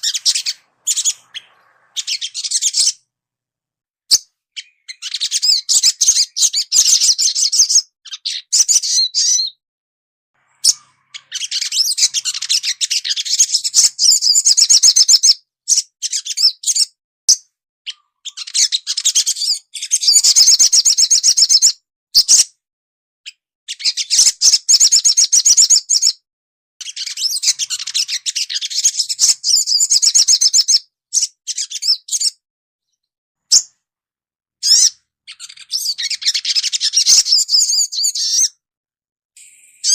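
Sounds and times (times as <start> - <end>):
bird twittering trills: 0.0 - 3.1, 4.1 - 9.6, 10.4 - 16.9, 26.8 - 32.4, 34.6 - 38.5, 39.4 - 39.9.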